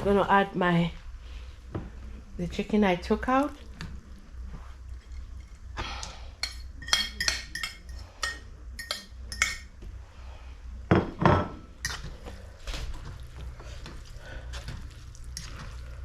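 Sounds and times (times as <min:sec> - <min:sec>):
utensil clinking against metal pot: 0:06.4 - 0:09.7.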